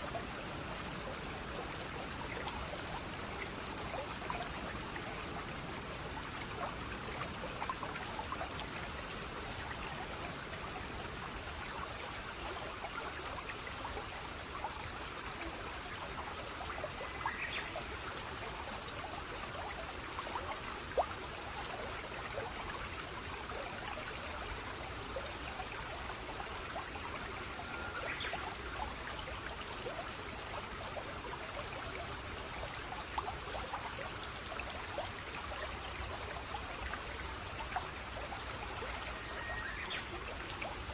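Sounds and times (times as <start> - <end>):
stream trickling and splashing: 0.0 - 40.9.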